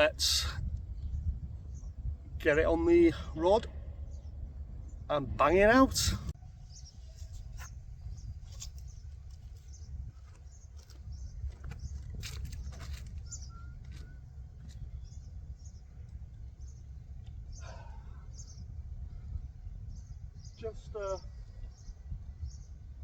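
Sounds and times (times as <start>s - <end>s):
wind rumble on microphone: 0.0s - 23.0s
faint bird chirps: 12.8s - 22.9s.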